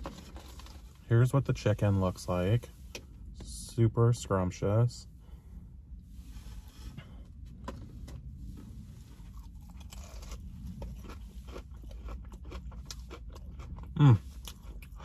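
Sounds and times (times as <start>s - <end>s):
crispy food crunching: 8.6s - 15.0s.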